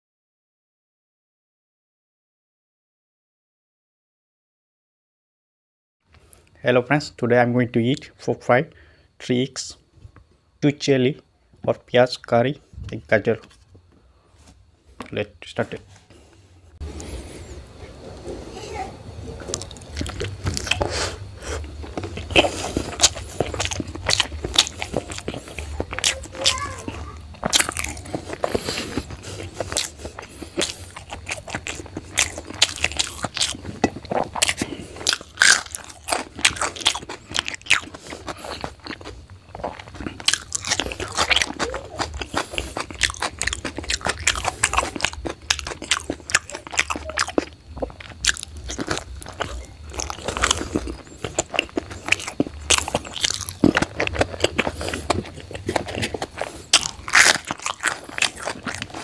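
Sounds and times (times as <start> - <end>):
person chewing food: 13.4 - 18.4, 19.3 - 59.0.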